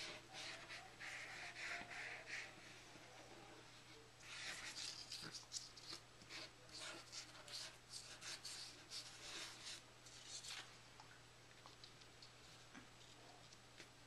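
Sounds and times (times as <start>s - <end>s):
scratchy rubbing on paper: 0.0s - 2.8s, 4.2s - 10.6s.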